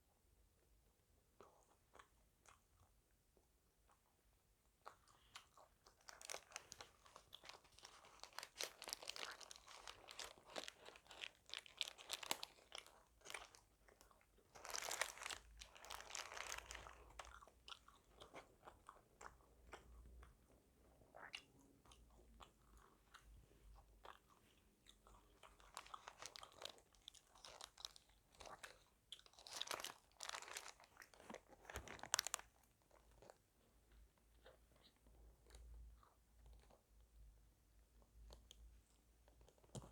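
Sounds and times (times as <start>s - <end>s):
chewing crispy fried food: 1.3s - 39.9s.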